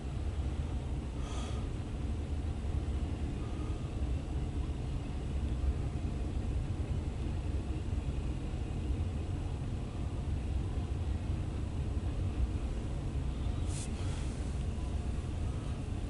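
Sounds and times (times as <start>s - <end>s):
muffled freight train rumble: 0.0s - 16.0s
brief hiss: 13.6s - 14.6s.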